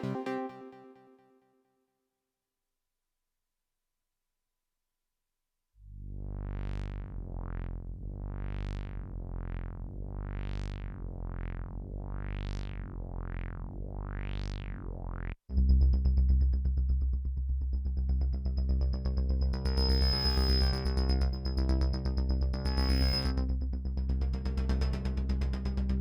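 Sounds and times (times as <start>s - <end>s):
synthesizer bass with filter sweeps: 0.0s - 1.0s, 5.9s - 26.0s
low pulsing synth bass: 5.9s - 26.0s
high whistling synth tone: 19.6s - 21.3s.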